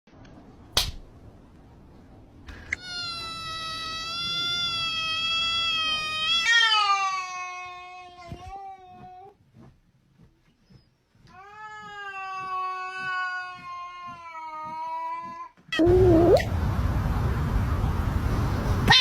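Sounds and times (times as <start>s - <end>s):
cat meowing: 2.8s - 9.1s.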